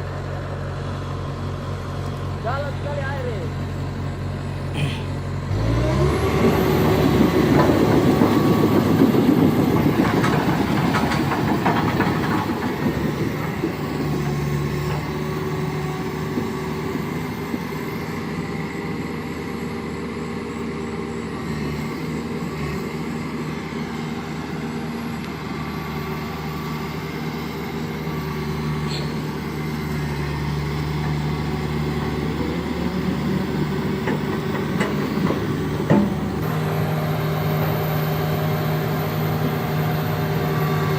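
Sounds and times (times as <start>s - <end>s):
pickup truck engine revving: 5.5s - 9.8s.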